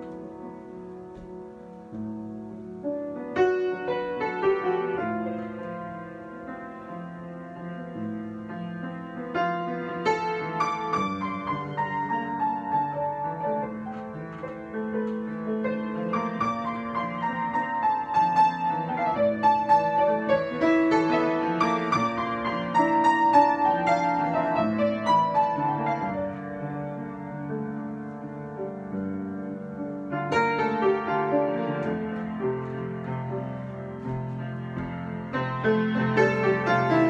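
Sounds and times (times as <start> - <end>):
solo piano: 0.0 - 37.0.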